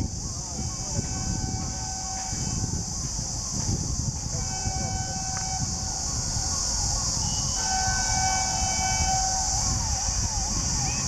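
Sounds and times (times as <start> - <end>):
diesel locomotive rumble: 0.0 - 11.0
steady high hiss: 0.0 - 11.0
high multi-note horn tone: 0.5 - 2.8, 4.3 - 6.3, 7.2 - 10.6.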